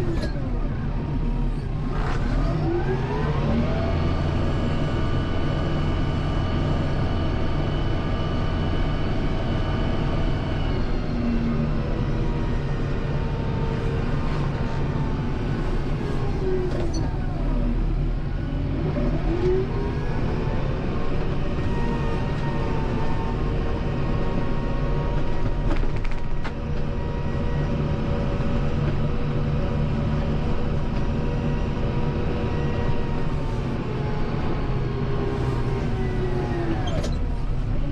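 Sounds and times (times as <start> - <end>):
tractor diesel engine revving: 26.8 - 37.9.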